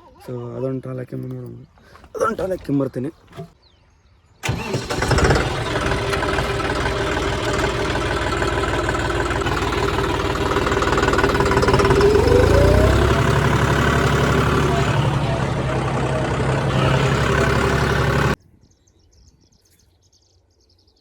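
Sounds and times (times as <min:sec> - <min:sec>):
diesel tractor engine chugging: 0:04.4 - 0:18.4.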